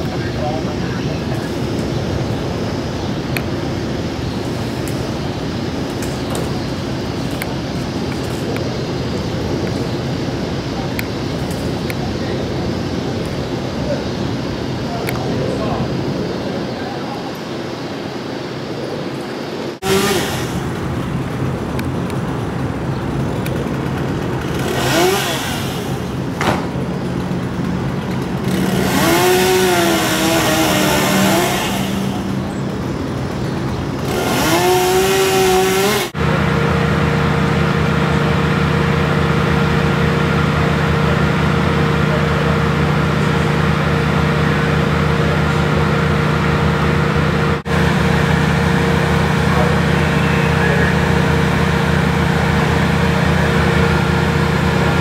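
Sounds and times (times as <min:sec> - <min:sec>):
engine revving: 0:19.8 - 0:22.6, 0:23.2 - 0:55.0.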